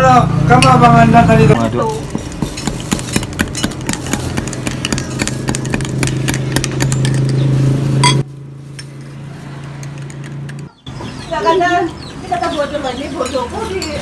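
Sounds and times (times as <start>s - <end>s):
sharp clicks and clatter: 2.0s - 7.4s.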